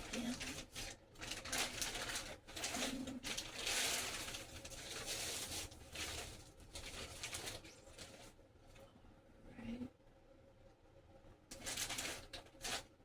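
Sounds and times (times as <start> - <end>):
plastic bags rustling: 0.0 - 8.4, 11.5 - 13.0.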